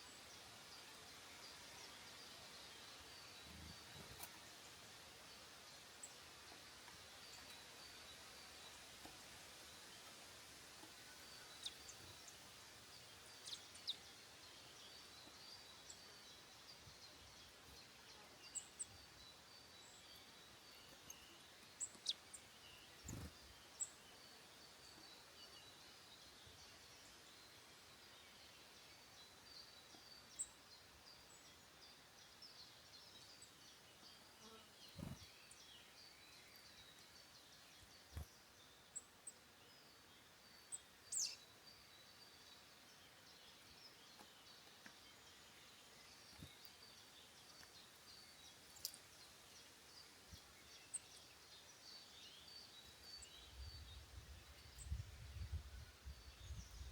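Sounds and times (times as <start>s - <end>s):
bird chirps and calls: 19.8s - 24.1s.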